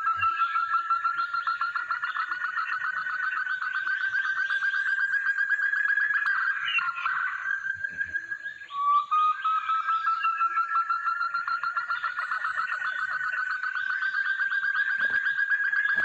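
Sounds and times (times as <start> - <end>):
partridge call repeated notes: 0.0 - 16.0.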